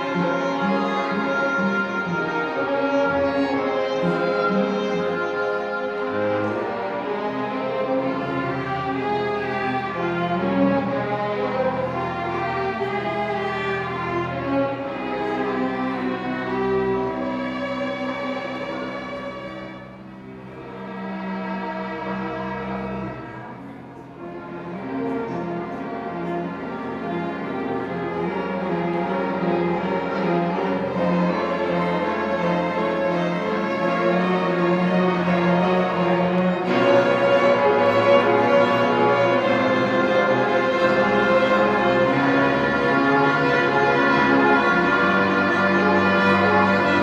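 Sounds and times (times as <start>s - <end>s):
lower accompaniment: 0.0s - 47.0s
violin playing held notes: 0.0s - 47.0s.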